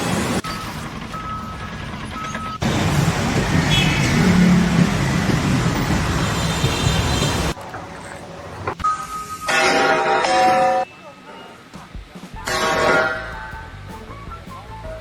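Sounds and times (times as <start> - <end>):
heavy engine rumbling: 0.0 - 8.8.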